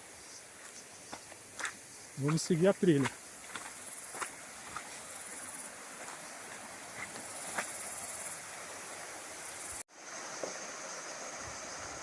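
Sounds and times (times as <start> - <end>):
high-pitched insect drone: 0.0 - 12.0
steady hiss: 0.0 - 12.0
footsteps snapping on trail: 0.6 - 7.9.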